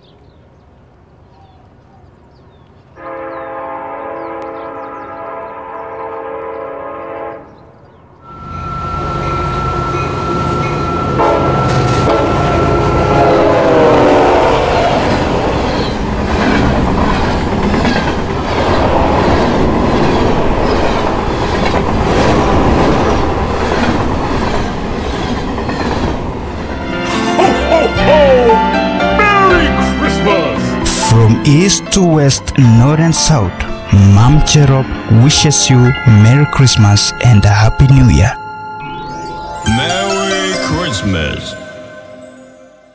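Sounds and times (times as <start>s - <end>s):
train horn chord: 3.0s - 15.1s, 26.7s - 30.9s
train rumbling on rails: 3.0s - 27.9s
wheels clickety-clack: 15.7s - 26.7s.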